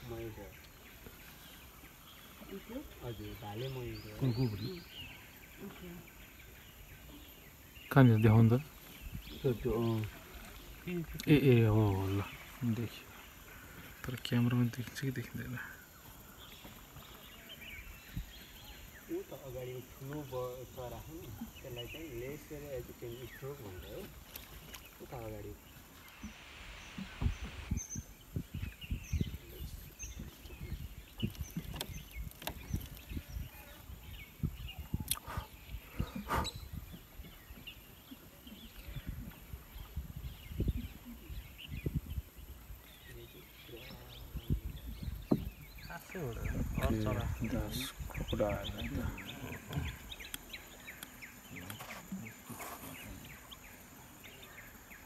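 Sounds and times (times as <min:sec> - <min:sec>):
birds chirping: 0:00.0 - 0:55.0
low thumps: 0:26.2 - 0:29.1.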